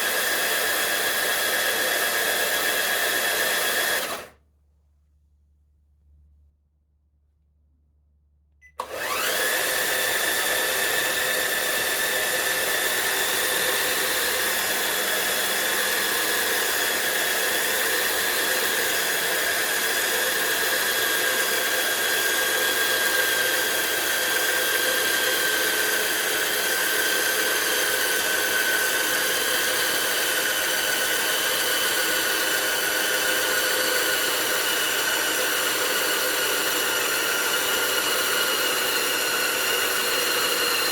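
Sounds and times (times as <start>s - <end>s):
electric motor whining: 8.8s - 40.9s.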